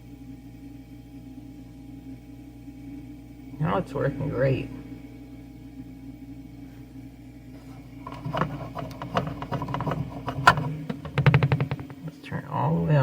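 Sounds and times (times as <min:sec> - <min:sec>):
fridge compressor humming: 0:00.0 - 0:13.0
clicks and knocks of handling: 0:08.0 - 0:12.2.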